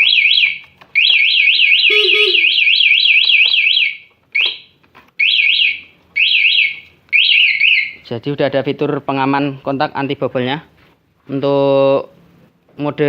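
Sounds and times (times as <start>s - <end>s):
alarm siren warbling: 0.0s - 4.6s.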